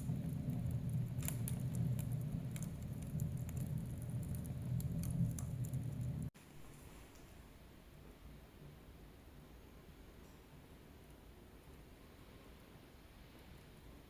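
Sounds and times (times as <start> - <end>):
low rumble of flames: 0.0 - 6.4
wood fire crackling: 0.0 - 6.4
faint hiss: 0.0 - 14.0.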